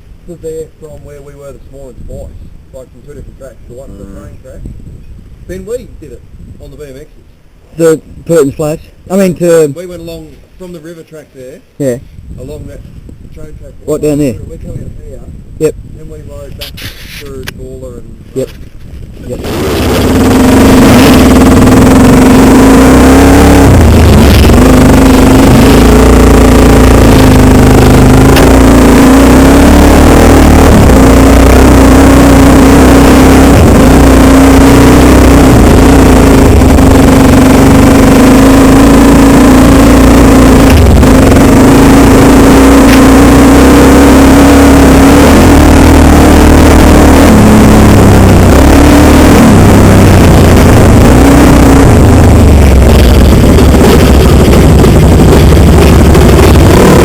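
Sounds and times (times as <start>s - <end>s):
dirt bike engine running: 19.0s - 57.0s.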